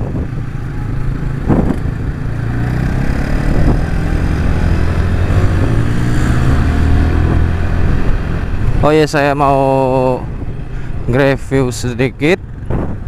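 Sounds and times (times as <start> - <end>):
motorcycle engine running: 0.0 - 8.9
wind and road noise: 0.0 - 13.0.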